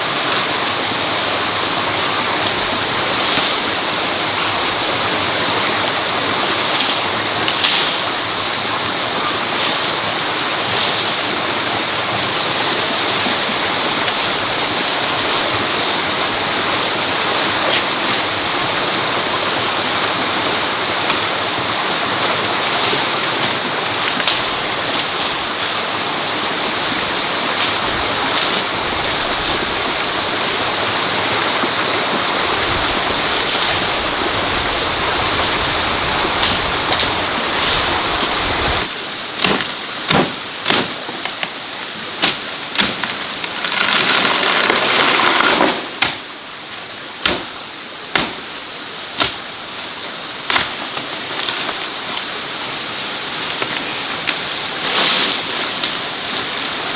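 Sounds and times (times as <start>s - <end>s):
flowing water rushing: 0.0s - 56.9s.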